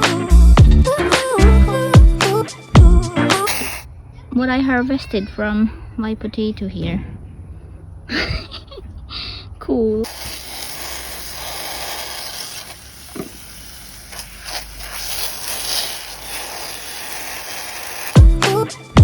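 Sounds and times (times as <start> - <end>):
music with a beat: 0.0 - 3.5, 18.2 - 19.0
steady hissing: 3.4 - 3.9, 10.0 - 19.0.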